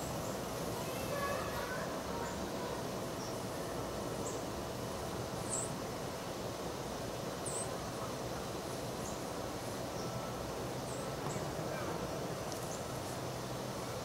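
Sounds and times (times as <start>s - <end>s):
outdoor background noise: 0.0s - 14.0s
small birds chirping: 4.2s - 4.5s, 7.4s - 7.8s, 10.8s - 11.6s, 12.5s - 13.0s.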